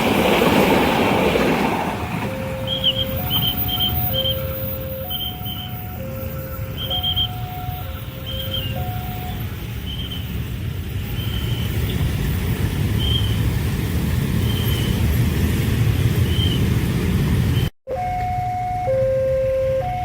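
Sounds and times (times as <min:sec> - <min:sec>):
train rumbling past: 0:00.0 - 0:18.7
two-tone level crossing alarm: 0:02.2 - 0:09.5, 0:17.9 - 0:20.0.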